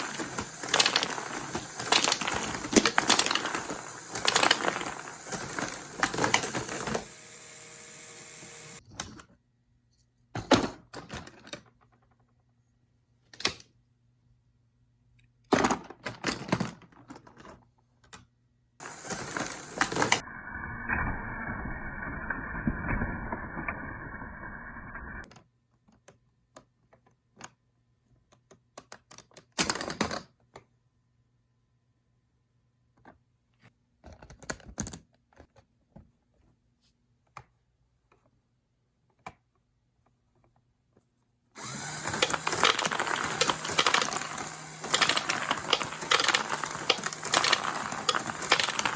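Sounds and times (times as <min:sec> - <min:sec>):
plastic clicking and clattering: 0:00.0 - 0:07.0, 0:28.3 - 0:30.7, 0:34.0 - 0:36.1, 0:42.0 - 0:48.9
continuous plastic rattle: 0:42.1 - 0:48.9.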